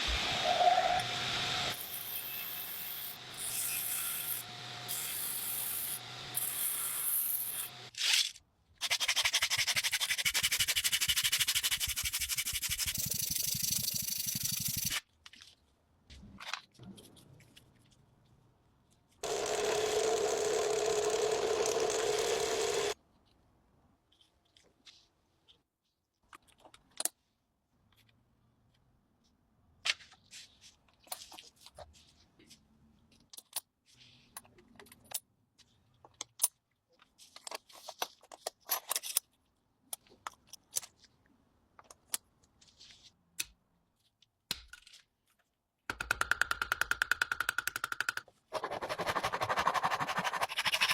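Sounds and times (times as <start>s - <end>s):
sanding metal: 48.6s - 50.9s.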